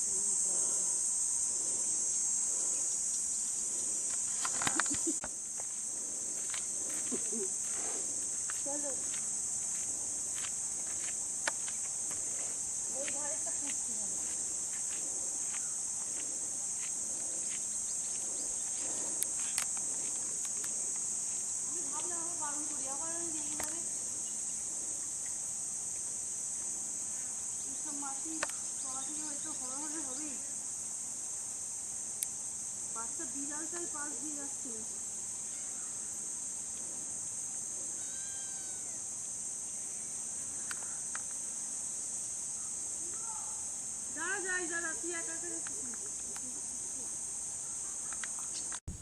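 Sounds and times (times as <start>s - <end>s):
insect chorus drone: 0.0s - 49.0s
faint ticks: 15.5s - 21.1s, 23.4s - 23.9s, 40.6s - 41.4s
faint pitched call: 38.0s - 39.0s.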